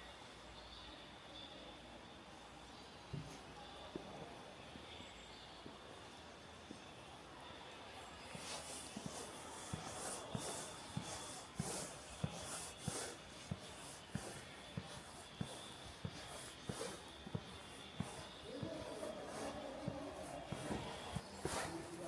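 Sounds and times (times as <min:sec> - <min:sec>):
footsteps walking: 0:08.2 - 0:22.0.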